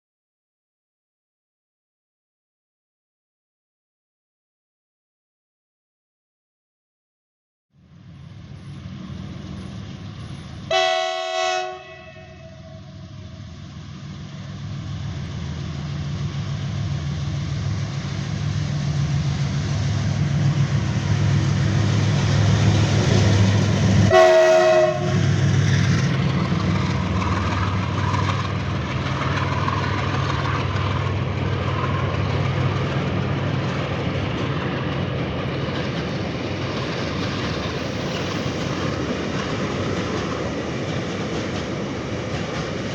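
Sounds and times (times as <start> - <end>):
diesel locomotive engine drone: 7.8 - 42.9
train horn: 10.7 - 13.0, 24.0 - 25.2.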